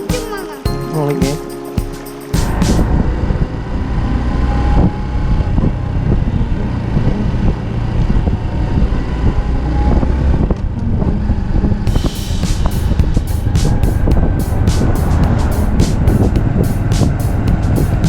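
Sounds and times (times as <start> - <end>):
motorcycle engine running: 11.9 - 18.0.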